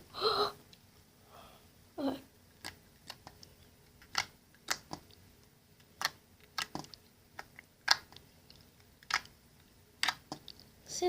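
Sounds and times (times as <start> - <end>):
slime clicking and popping: 2.5 - 5.2, 5.8 - 9.4, 10.0 - 10.7.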